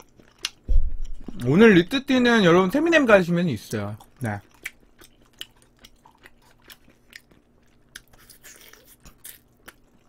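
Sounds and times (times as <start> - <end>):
person chewing food: 0.0 - 1.5, 4.0 - 10.0.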